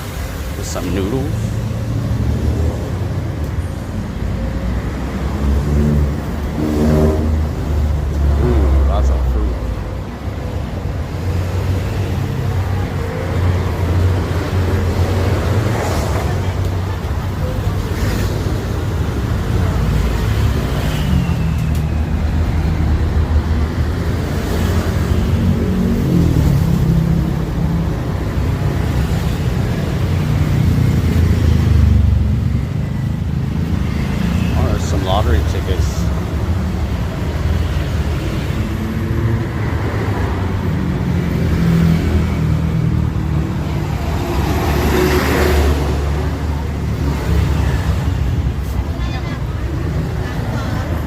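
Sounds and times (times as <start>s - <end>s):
motor vehicle engines running: 0.0s - 51.0s
road traffic rumble: 0.0s - 51.0s.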